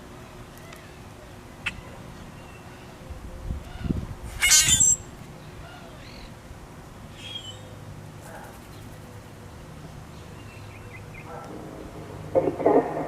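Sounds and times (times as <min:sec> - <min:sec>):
bird harsh call: 0:03.7 - 0:06.3, 0:07.1 - 0:07.8.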